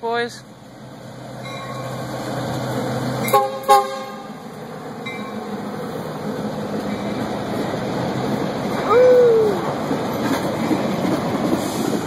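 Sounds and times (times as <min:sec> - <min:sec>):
diesel locomotive engine humming: 0:00.0 - 0:12.0
train rumbling past: 0:00.0 - 0:12.0
train horn blasts: 0:03.2 - 0:04.4.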